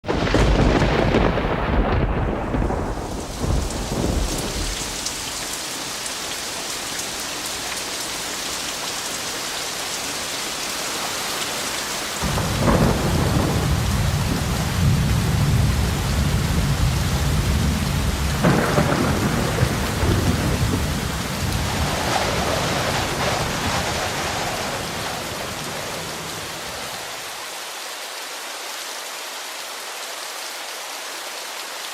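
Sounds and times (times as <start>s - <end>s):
thunder pealing: 0.0s - 5.5s, 12.2s - 27.1s
steady rain: 0.0s - 31.9s.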